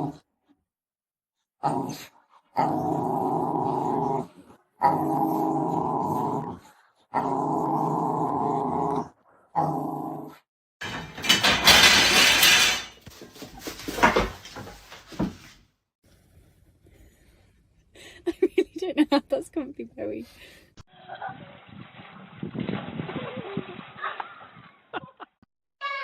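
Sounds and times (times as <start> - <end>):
dog growling: 1.6 - 10.4.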